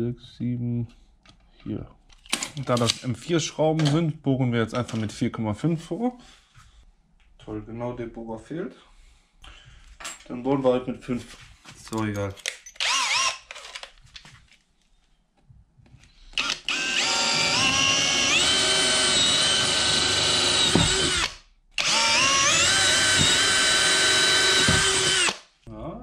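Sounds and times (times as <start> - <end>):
power drill whining: 12.8 - 13.8, 16.3 - 25.4.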